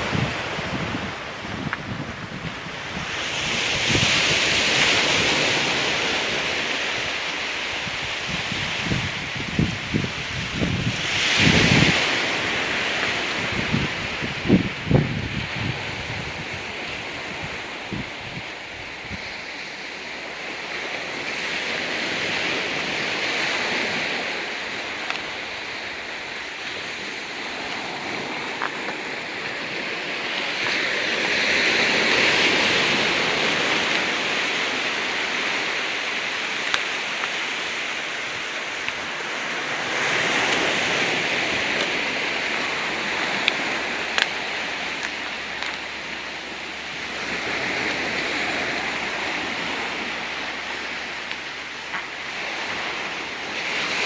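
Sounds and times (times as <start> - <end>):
waves washing onto rocky beach: 0.0 - 54.0
faint sharp clicks: 43.4 - 44.4.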